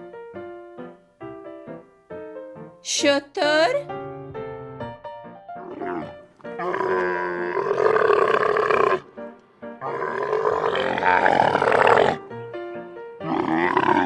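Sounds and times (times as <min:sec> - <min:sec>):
camel calling: 0:05.6 - 0:09.1, 0:09.8 - 0:12.3, 0:13.2 - 0:14.0.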